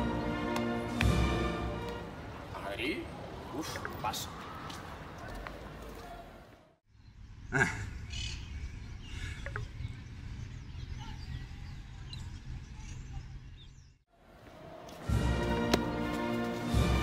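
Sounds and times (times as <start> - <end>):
bird chirps: 6.9 - 14.0.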